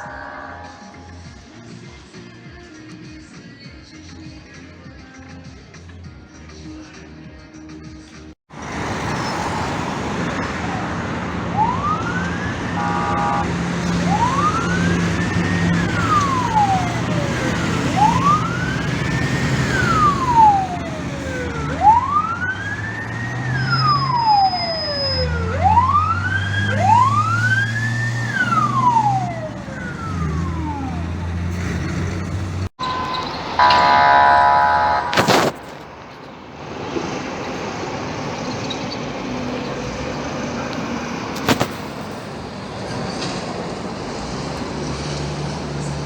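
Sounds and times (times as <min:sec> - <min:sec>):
fire engine siren wailing: 0:00.0 - 0:01.4, 0:08.6 - 0:35.8
vehicle engine running: 0:09.8 - 0:23.5, 0:25.5 - 0:36.4.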